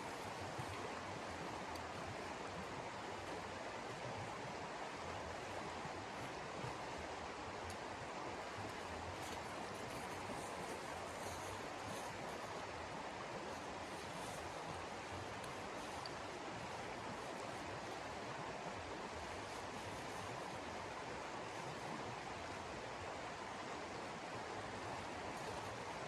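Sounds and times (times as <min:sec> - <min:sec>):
faint ticks: 0:07.6 - 0:07.9.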